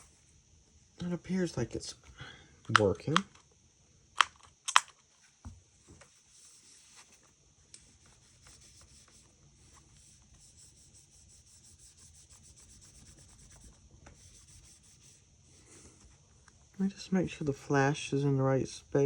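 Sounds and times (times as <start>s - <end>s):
cloth rubbing on phone: 6.0s - 16.2s.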